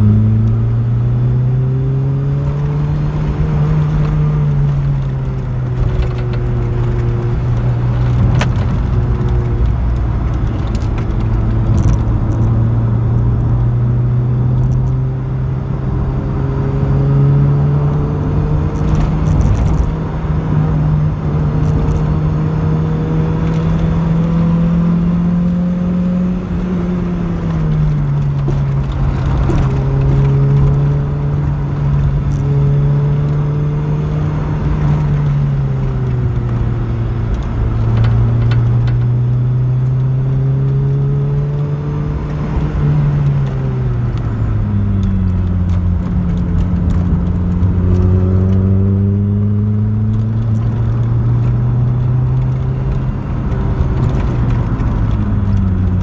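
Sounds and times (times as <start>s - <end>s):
car engine accelerating: 0.0s - 56.0s
rattles and clicks: 2.6s - 12.6s, 18.7s - 20.0s, 26.5s - 33.4s, 34.6s - 39.2s, 42.3s - 48.7s, 50.1s - 56.0s.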